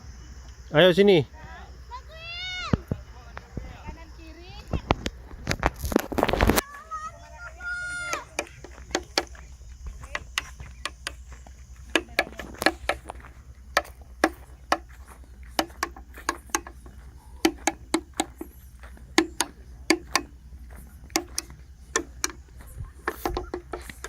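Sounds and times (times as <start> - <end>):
sharp knocks or clicks: 8.1 - 9.4, 10.0 - 11.2, 11.9 - 24.0
steady low rumble: 12.9 - 23.1.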